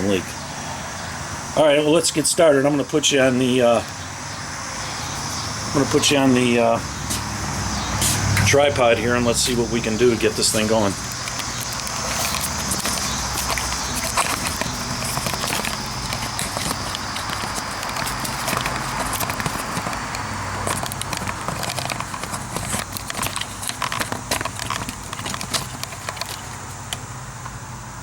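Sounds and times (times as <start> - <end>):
camera being handled: 9.4 - 27.0.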